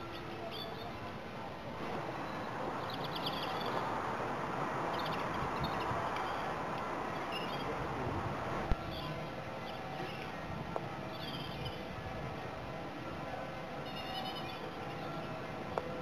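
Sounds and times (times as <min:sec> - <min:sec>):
small birds chirping: 0:00.0 - 0:01.1, 0:02.1 - 0:07.9
steady rushing background noise: 0:00.0 - 0:16.0.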